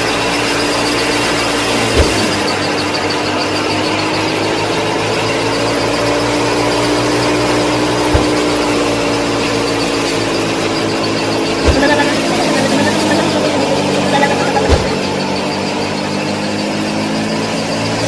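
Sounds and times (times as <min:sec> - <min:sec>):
short knock: 0:08.2 - 0:08.5.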